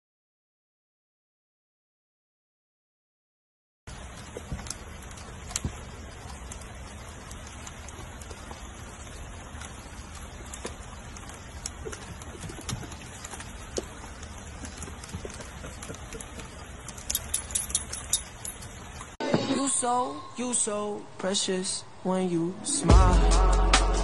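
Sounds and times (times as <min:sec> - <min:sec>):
rain pattering on wooden deck: 0:03.9 - 0:19.2
sharp drips: 0:03.9 - 0:19.2.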